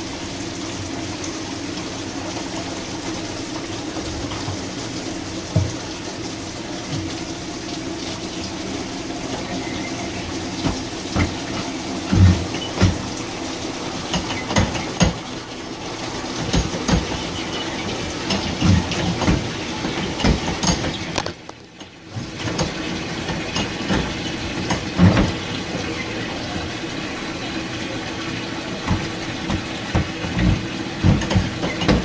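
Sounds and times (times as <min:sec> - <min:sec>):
low machine hum: 0:00.0 - 0:32.0
water running into a sink: 0:00.0 - 0:32.0
knocks and thumps: 0:09.3 - 0:13.2, 0:14.1 - 0:15.3, 0:16.4 - 0:21.6, 0:22.2 - 0:26.8, 0:28.8 - 0:32.0.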